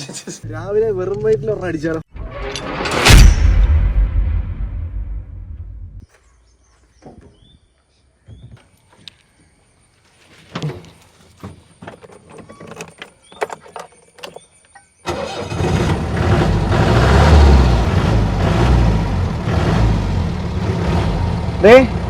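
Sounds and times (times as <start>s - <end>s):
vehicle engine starting and running: 15.1s - 22.0s.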